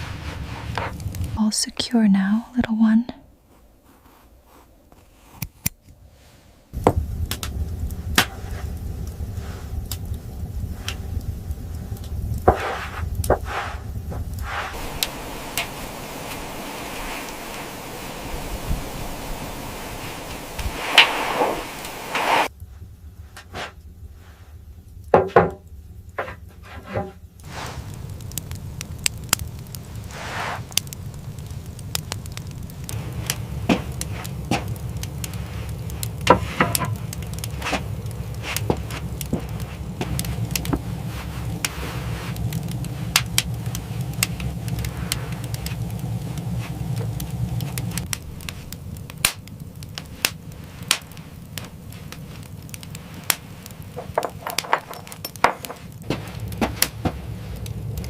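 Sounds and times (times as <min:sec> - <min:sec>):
steady low rumble: 0:00.0 - 0:04.5, 0:06.1 - 0:58.0
sharp knocks and cracks: 0:06.8 - 0:08.7, 0:12.0 - 0:13.5, 0:30.7 - 0:35.4, 0:36.0 - 0:40.9, 0:47.0 - 0:58.0.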